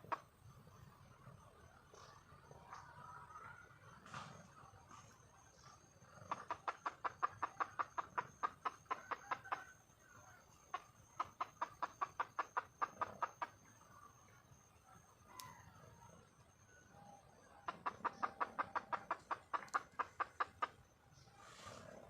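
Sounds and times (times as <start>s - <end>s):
hen clucking: 0.0s - 0.3s, 5.8s - 13.6s, 17.5s - 20.9s.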